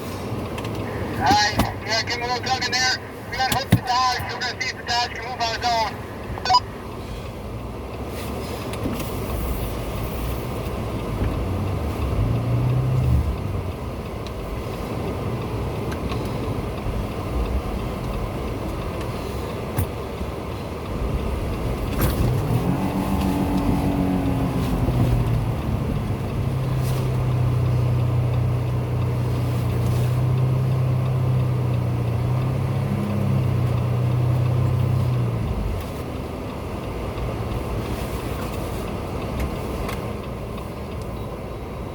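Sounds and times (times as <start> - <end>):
truck engine revving: 9.1 - 19.0, 20.1 - 40.9.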